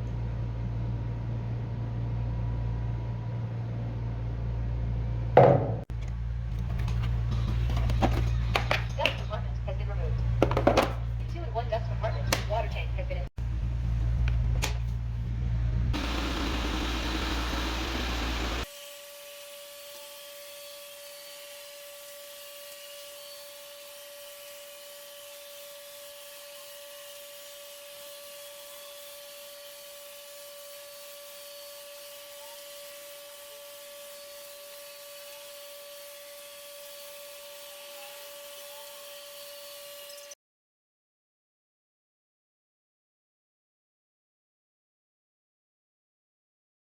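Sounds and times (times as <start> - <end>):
robot vacuum fan whine: 16.0 - 18.7.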